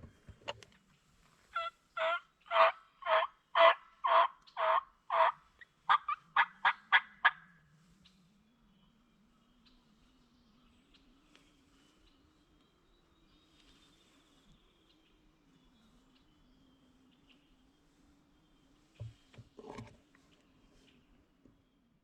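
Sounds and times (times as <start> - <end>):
turkey yelping: 1.6 - 7.4.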